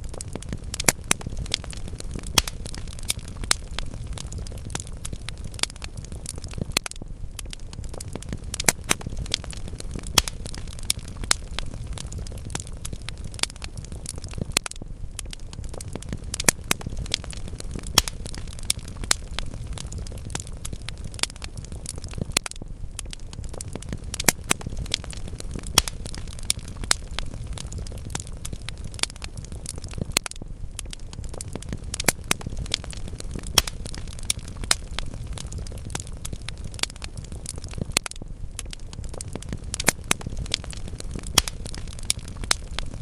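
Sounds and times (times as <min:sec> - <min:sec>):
burning logs crackling: 0:00.0 - 0:43.0
low rush of flame: 0:00.0 - 0:43.0
sharp pops of fire: 0:00.0 - 0:43.0.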